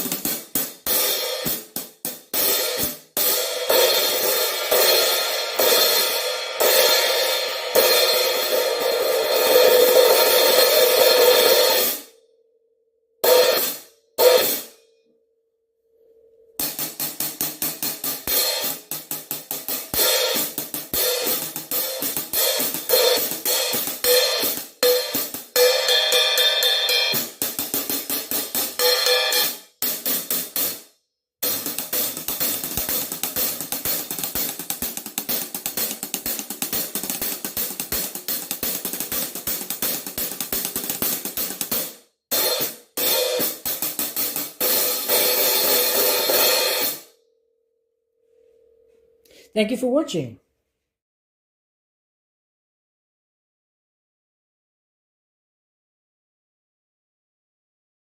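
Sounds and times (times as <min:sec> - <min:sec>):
hi-hat cymbals played with stick: 0:00.0 - 0:12.1, 0:16.6 - 0:30.8, 0:31.4 - 0:47.1.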